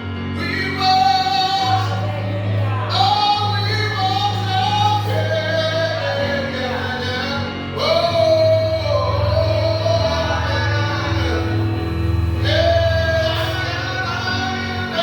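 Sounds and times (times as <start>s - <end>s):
sustained bass notes: 0.0s - 15.0s
woman singing gospel song: 0.4s - 11.6s.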